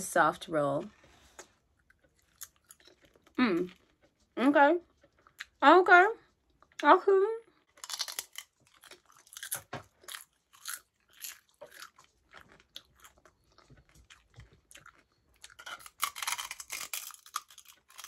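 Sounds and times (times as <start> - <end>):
crunching seaweed snack: 7.7 - 18.0.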